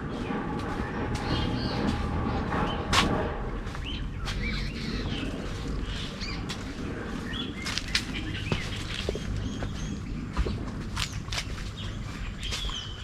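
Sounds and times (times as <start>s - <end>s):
birds chirping: 0.0s - 13.0s
footsteps on leaves: 0.1s - 13.0s.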